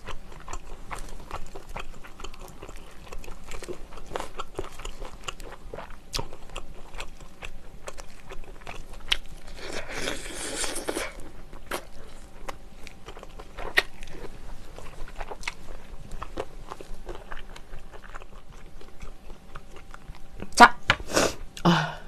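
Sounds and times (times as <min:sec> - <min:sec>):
chewing with wet smacking: 0:00.0 - 0:20.6.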